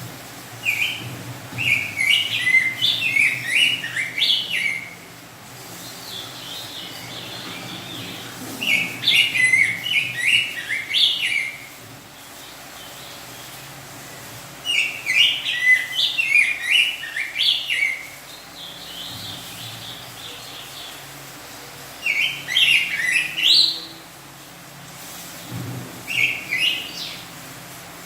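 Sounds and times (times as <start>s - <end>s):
bird singing whistled phrases: 1.6s - 5.0s, 8.0s - 11.7s, 14.7s - 18.2s, 22.0s - 24.0s, 26.1s - 27.2s.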